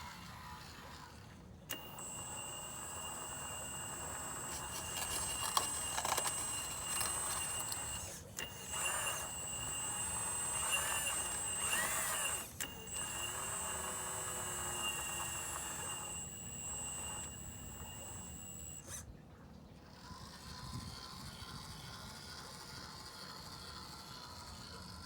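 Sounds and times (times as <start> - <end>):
hydraulic pump whining: 0.0 - 19.1
clicking and rattling: 4.4 - 9.5.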